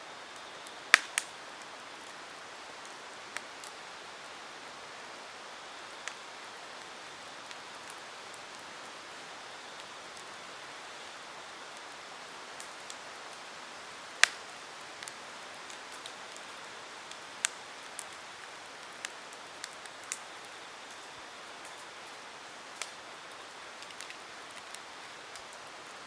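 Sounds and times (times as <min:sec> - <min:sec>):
campfire hissing: 0:00.0 - 0:26.0
wood crackling and popping: 0:00.2 - 0:26.0.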